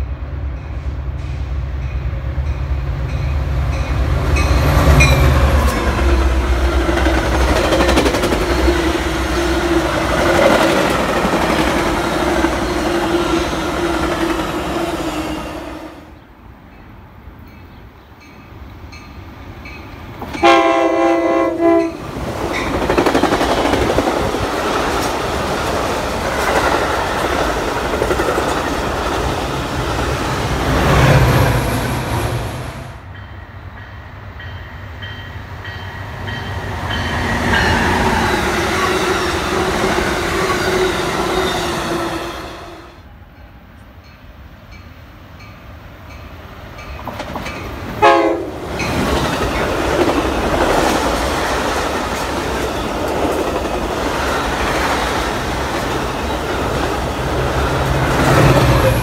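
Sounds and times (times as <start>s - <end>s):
train passing at speed: 0.0s - 59.0s
train horn blast: 20.4s - 22.0s, 48.0s - 48.6s.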